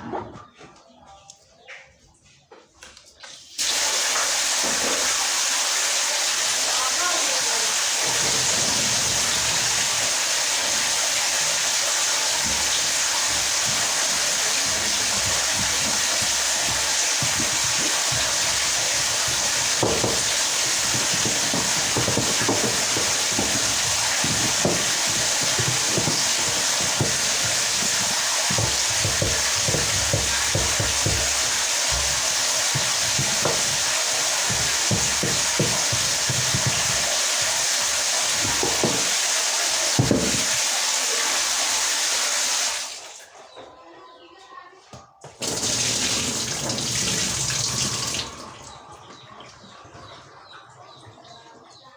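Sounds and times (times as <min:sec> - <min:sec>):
running water hiss: 0:03.4 - 0:43.1, 0:45.4 - 0:48.5
parts knocking while handled: 0:12.4 - 0:39.2.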